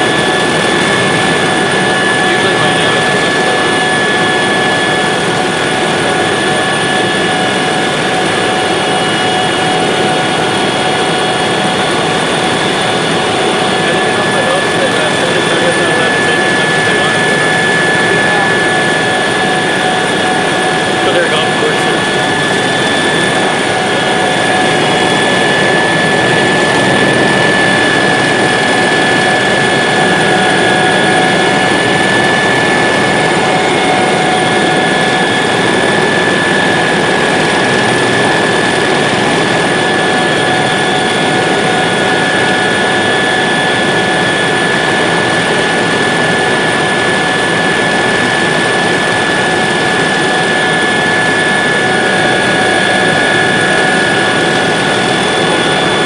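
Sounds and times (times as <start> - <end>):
helicopter engine and rotor noise: 0.0 - 56.0
high steady whine: 0.0 - 56.0.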